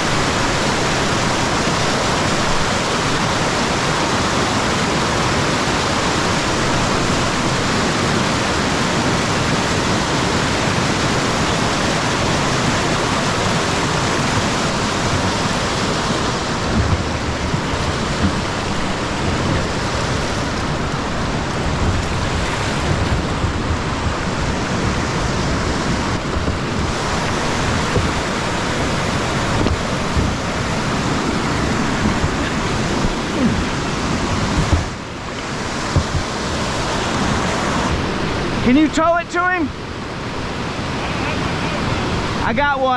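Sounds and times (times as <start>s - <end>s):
creek whitewater rushing: 0.0s - 42.9s
low thuds: 16.1s - 28.4s, 29.3s - 36.4s.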